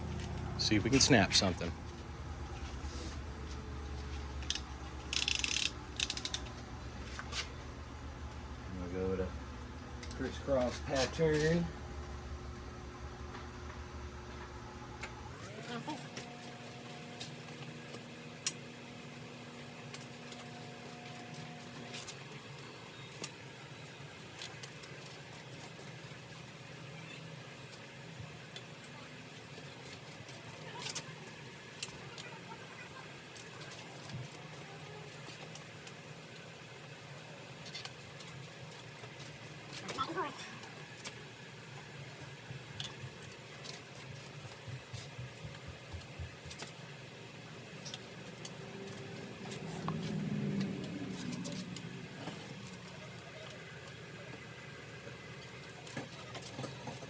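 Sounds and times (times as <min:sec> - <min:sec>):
low steady hum: 0:00.0 - 0:24.7
torque wrench clicks: 0:04.5 - 0:06.4.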